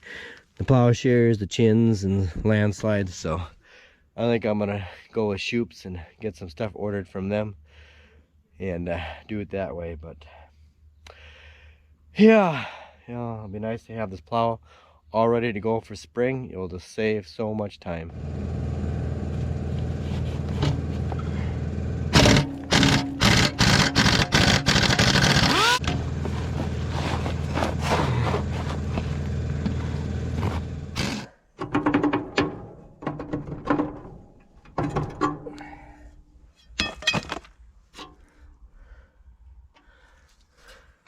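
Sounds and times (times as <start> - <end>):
engine running: 18.1 - 31.3
knocks and clunks on a plow: 22.1 - 35.6.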